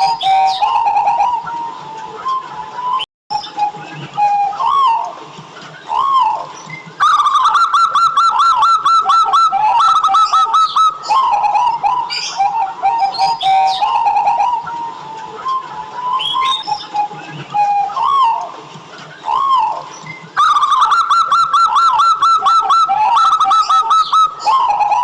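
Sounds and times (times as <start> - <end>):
dove cooing: 0.0 - 5.2, 5.8 - 18.5, 19.2 - 25.0
higher bird chirps: 0.0 - 5.2, 5.8 - 25.0.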